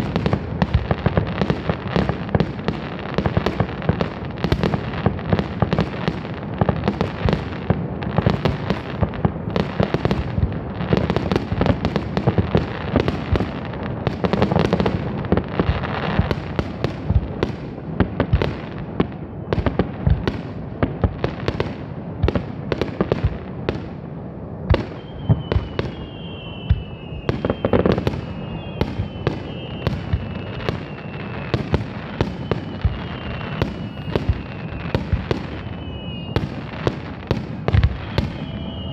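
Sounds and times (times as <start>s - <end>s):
fireworks bursting: 0.0s - 38.9s
high falling firework whistles: 24.7s - 38.9s.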